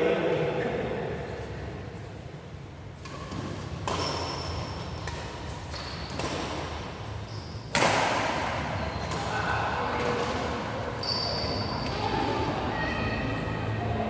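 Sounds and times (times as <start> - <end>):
sports shoes squeaking on floor: 3.0 - 7.9, 10.8 - 13.2.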